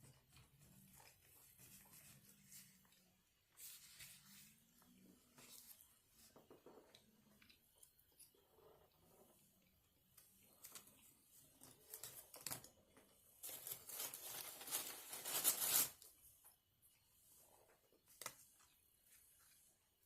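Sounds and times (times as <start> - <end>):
paper rustle: 10.6 - 16.2
paper wrapper crinkling and tearing: 11.6 - 12.8, 13.4 - 16.1.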